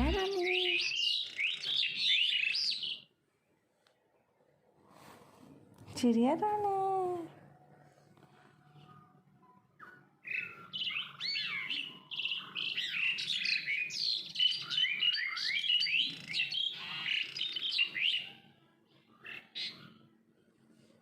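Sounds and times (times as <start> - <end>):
small bird singing: 0.0 - 3.2, 8.7 - 20.2.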